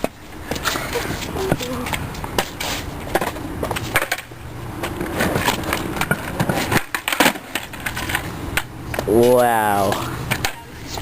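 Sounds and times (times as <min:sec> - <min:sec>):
skateboard wheels rumbling: 0:00.0 - 0:11.0
skateboard clacks and knocks: 0:03.1 - 0:10.7.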